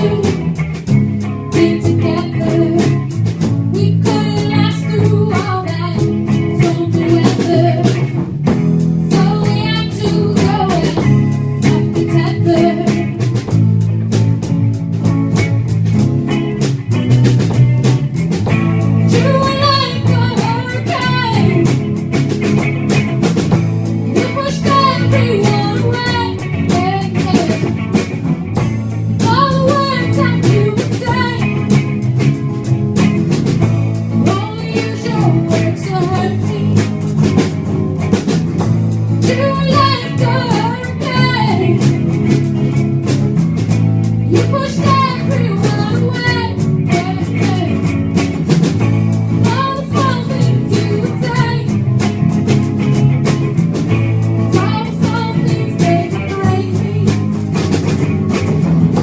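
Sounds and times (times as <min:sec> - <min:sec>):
person singing: 0:00.0 - 0:00.4, 0:01.5 - 0:03.1, 0:03.8 - 0:08.0, 0:19.1 - 0:21.8, 0:24.1 - 0:27.7, 0:29.2 - 0:31.6, 0:39.2 - 0:42.0, 0:44.3 - 0:47.8, 0:49.4 - 0:51.7, 0:54.5 - 0:57.2
drum kit: 0:00.0 - 0:59.0
guitar: 0:00.0 - 0:59.0.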